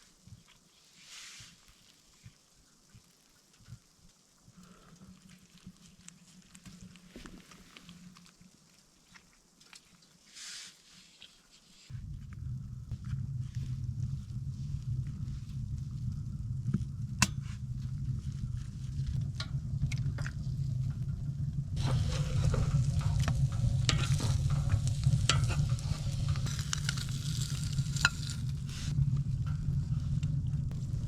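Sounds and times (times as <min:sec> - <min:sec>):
low rumble: 0:11.9 - 0:31.0
food sizzling in a pan: 0:21.8 - 0:28.9
utensil clicking and scraping: 0:21.8 - 0:29.0.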